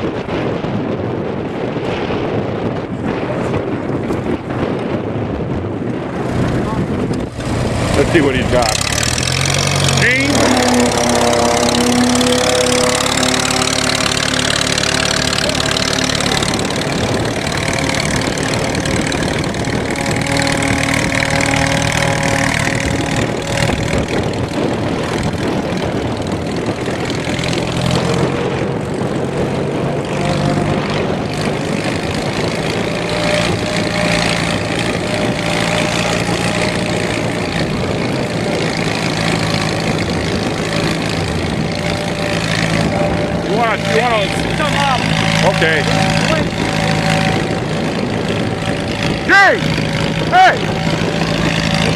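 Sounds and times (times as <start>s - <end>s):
tractor engine running under load: 0.0s - 51.9s
transmission growl: 8.0s - 28.7s.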